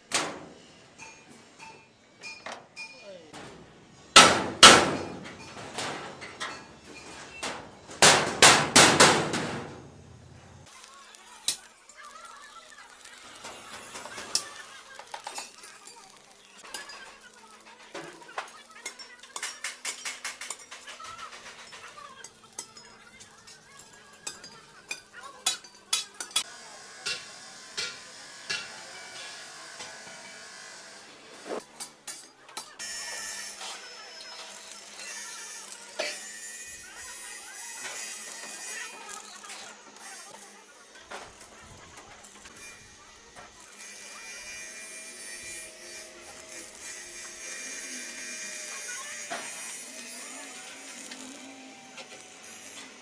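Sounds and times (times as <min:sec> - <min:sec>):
small motor running: 0:42.5 - 0:53.0.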